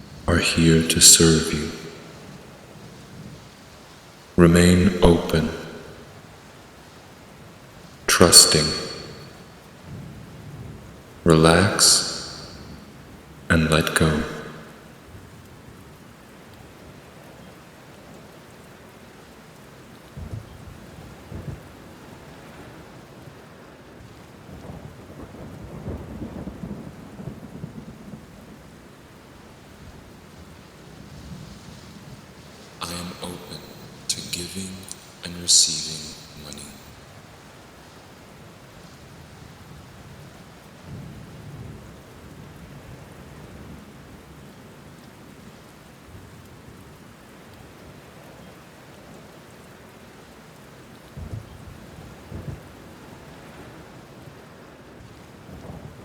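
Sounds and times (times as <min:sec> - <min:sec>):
steady rain falling: 0:00.0 - 0:56.0
low rumble of thunder: 0:24.5 - 0:28.5.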